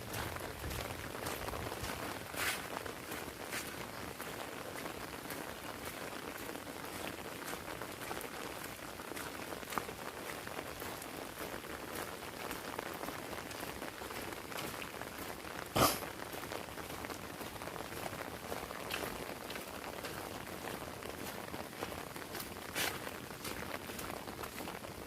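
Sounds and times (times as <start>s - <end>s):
heavy rain on an umbrella: 0.0s - 25.0s.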